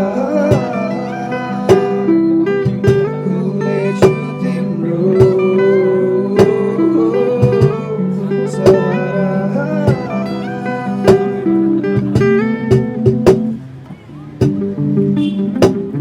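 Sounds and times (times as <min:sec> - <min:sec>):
guitar melody with bending notes: 0:00.0 - 0:16.0
sharp drum hits: 0:00.5 - 0:00.8, 0:01.7 - 0:02.0, 0:02.6 - 0:03.2, 0:04.0 - 0:04.3, 0:05.2 - 0:05.4, 0:07.4 - 0:07.8, 0:08.7 - 0:09.0, 0:11.1 - 0:11.4, 0:12.0 - 0:13.6, 0:15.6 - 0:15.9.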